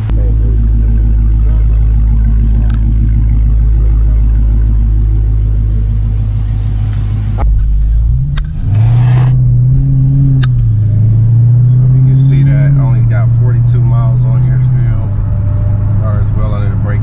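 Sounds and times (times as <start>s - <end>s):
car engine idling: 0.0s - 17.0s
car engine pulling away: 0.0s - 17.0s.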